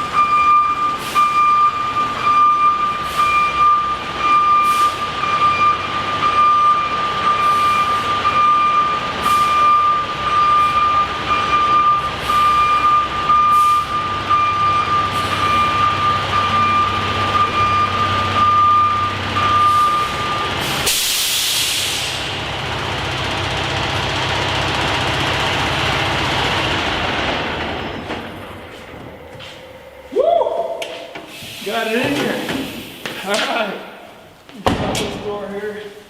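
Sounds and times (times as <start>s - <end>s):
truck backup alarm beeping: 0.0s - 30.1s
diesel engine running: 0.0s - 30.4s
air brake hiss: 20.6s - 22.3s, 31.2s - 33.2s.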